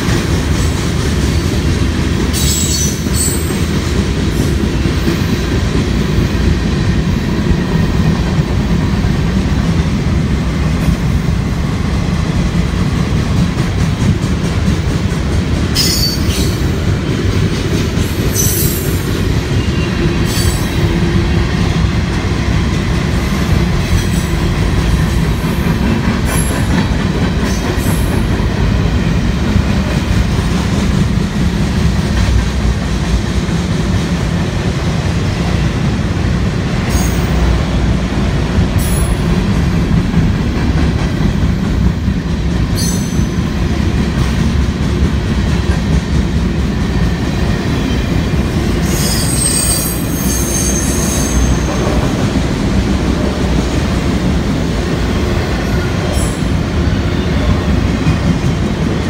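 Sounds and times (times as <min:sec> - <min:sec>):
steel wheels rumbling on rail: 0:00.0 - 0:59.0
high wheel squeals: 0:15.8 - 0:16.6, 0:18.3 - 0:20.8, 0:48.8 - 0:51.8.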